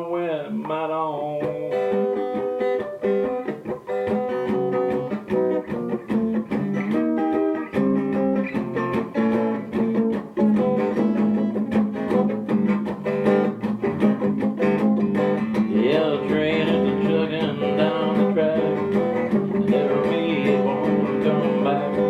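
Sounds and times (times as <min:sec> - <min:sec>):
guitar playing: 0:00.0 - 0:22.0.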